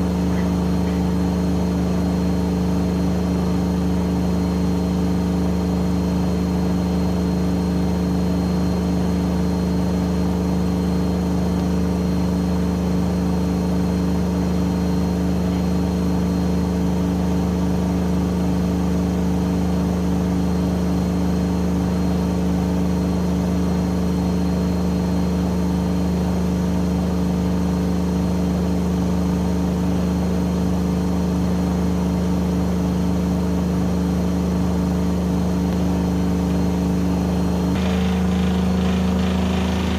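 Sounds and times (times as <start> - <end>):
washing machine drum spinning: 37.8 - 39.9.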